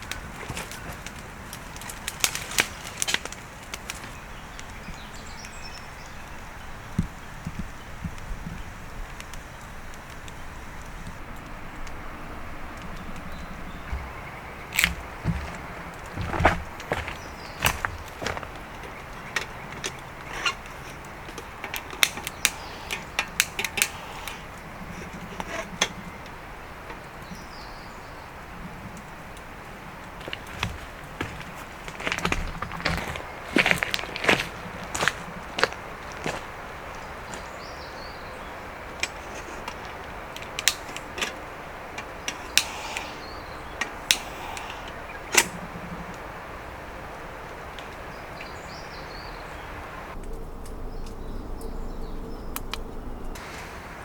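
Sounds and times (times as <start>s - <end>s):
fire popping: 0.0s - 49.3s
campfire crackling: 0.0s - 51.9s, 52.6s - 54.0s
outdoor background noise: 0.0s - 54.0s
steady background hiss: 0.0s - 54.0s
sharp clicks and knocks: 13.9s - 24.0s, 30.1s - 36.5s.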